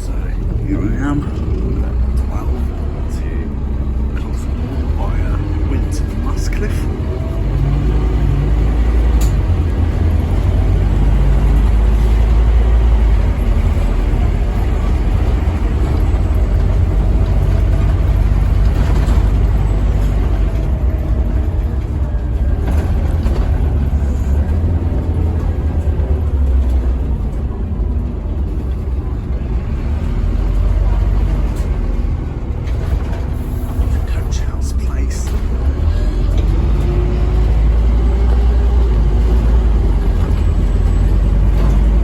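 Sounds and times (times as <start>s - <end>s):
bus diesel engine rumble: 0.0s - 42.0s.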